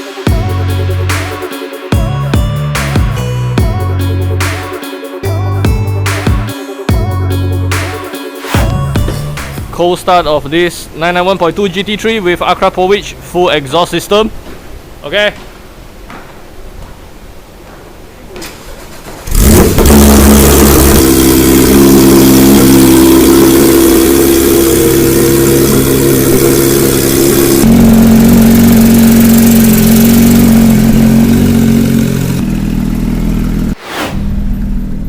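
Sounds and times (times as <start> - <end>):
car engine cold start: 19.2 - 35.0
car engine fast idle: 19.3 - 33.8.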